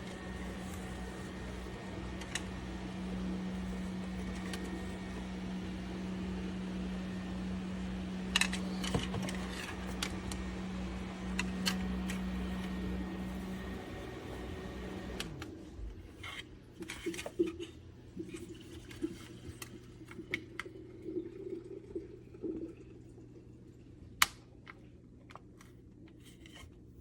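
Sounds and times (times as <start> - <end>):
clicks and handling noises: 0.0 - 2.8, 3.5 - 5.2, 8.3 - 10.5, 11.3 - 20.7, 24.2 - 27.0
small fan humming and winding down: 0.0 - 22.1
faint steady hum: 0.0 - 27.0.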